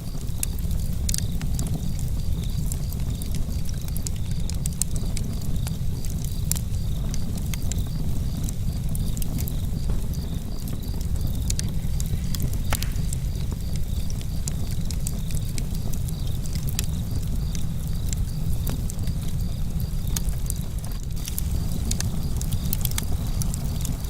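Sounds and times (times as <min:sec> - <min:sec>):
campfire crackling and popping: 0:00.0 - 0:24.0
crickets chirping: 0:00.0 - 0:24.0.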